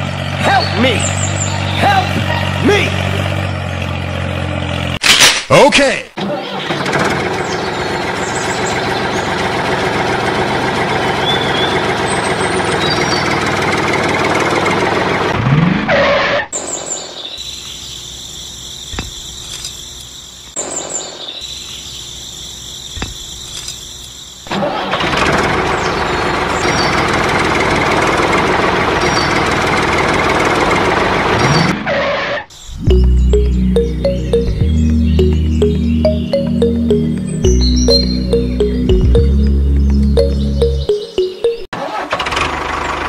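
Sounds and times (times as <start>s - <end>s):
tractor engine running: 6.8s - 15.3s.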